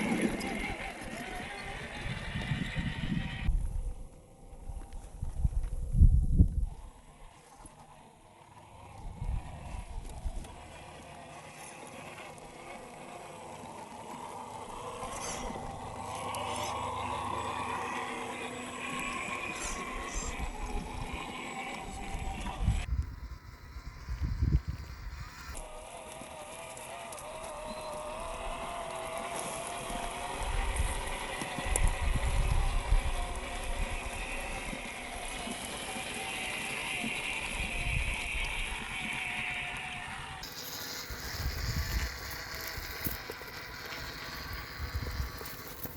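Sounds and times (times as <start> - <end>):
electric motor whining: 0.0 - 3.6, 4.6 - 45.9
low rumbling buffets: 0.0 - 25.9
wheels crunching on ground: 0.0 - 45.9.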